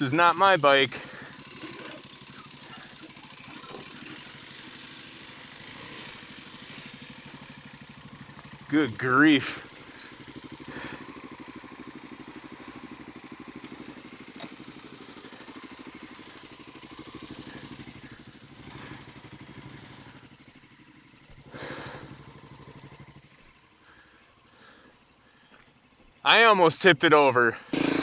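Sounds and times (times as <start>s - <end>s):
dirt bike engine thumping: 9.6s - 20.2s.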